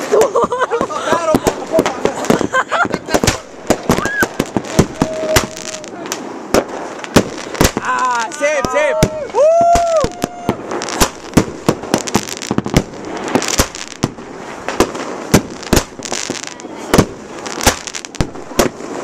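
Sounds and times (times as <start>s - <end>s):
fireworks bangs: 0.0s - 19.0s
fireworks crackling: 0.0s - 19.0s.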